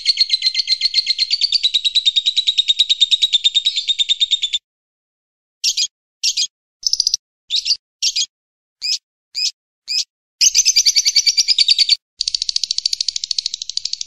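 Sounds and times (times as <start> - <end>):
fast high bird trill: 0.0 - 4.6, 5.6 - 14.0
high bird chirps: 0.0 - 4.6, 5.6 - 14.0.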